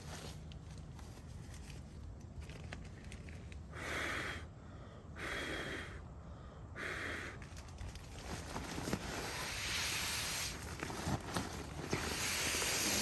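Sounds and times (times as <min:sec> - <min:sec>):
puffs of rushing air: 0:09.2 - 0:10.8, 0:11.9 - 0:13.0.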